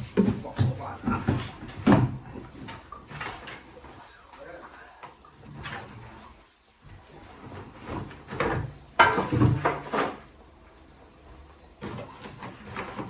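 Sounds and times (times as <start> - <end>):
hard objects knocking and rattling: 0.0 - 3.8, 7.8 - 10.2.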